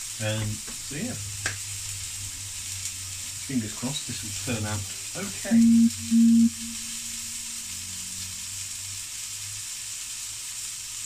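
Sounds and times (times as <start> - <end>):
meat sizzling in frying pan: 0.0 - 5.4, 6.8 - 11.0
loud low steady tone: 5.4 - 7.6.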